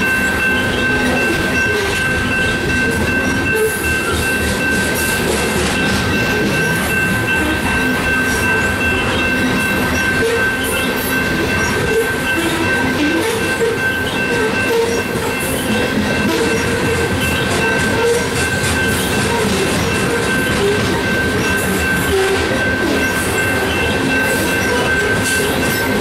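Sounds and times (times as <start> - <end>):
high-pitched ring: 0.0 - 26.0
train wheels rumbling on rail: 0.0 - 26.0.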